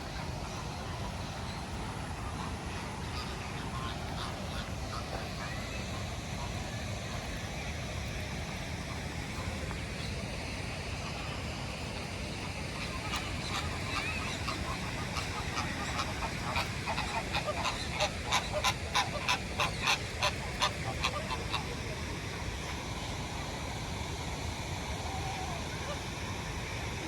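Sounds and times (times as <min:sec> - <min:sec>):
geese honking: 0:02.3 - 0:05.7, 0:12.4 - 0:21.9.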